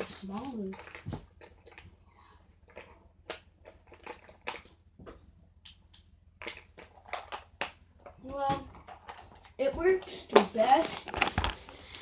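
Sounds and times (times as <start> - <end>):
small hard objects clicking: 0.0 - 1.9, 2.7 - 4.8, 5.6 - 9.6.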